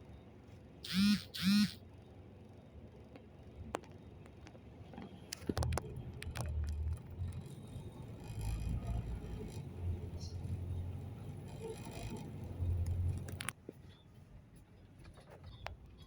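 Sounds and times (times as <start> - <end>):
bus engine rumble: 3.4 - 16.0
clicks and rattles: 11.5 - 13.6.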